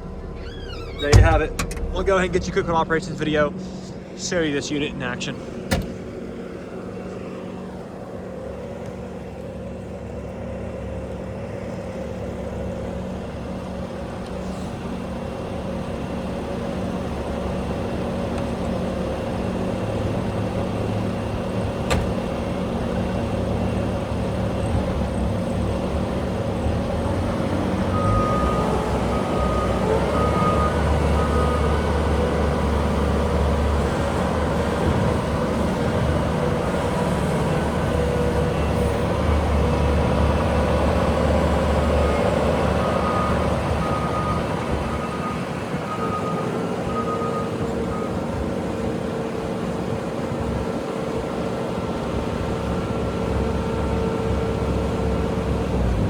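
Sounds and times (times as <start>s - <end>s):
loader diesel engine working: 0.0s - 56.0s.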